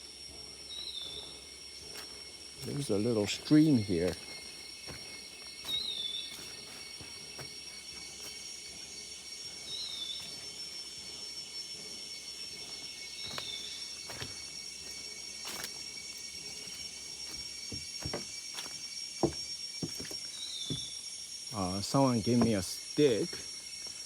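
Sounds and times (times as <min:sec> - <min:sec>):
insect chorus: 0:00.0 - 0:24.0
footsteps knocking: 0:17.7 - 0:18.3, 0:19.2 - 0:20.9, 0:22.4 - 0:22.7.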